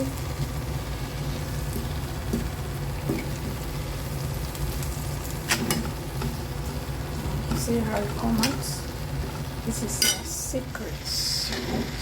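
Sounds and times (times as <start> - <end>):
food sizzling in a pot: 0.0 - 12.0
steady low hum: 0.0 - 12.0.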